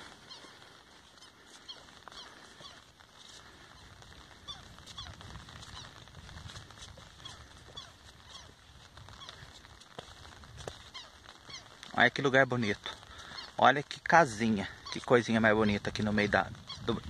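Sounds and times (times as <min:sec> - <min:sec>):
bird chirping: 0:00.0 - 0:03.0.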